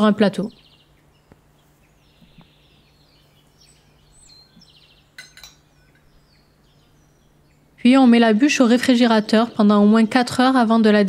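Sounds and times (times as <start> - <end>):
faint birdsong: 0.0 - 11.0
low steady hum: 0.0 - 11.0
light clinks: 5.1 - 6.2.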